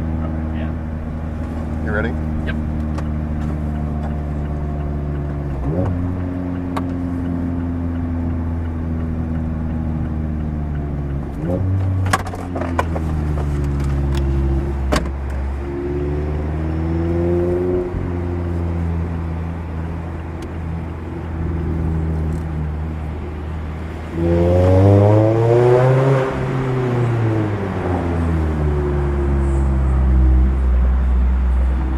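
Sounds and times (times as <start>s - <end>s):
car engine driving: 0.0s - 31.9s.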